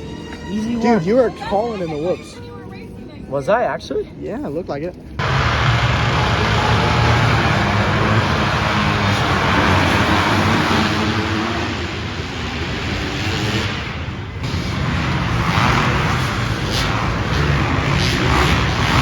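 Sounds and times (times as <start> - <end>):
dirt bike engines running: 5.2 - 19.0.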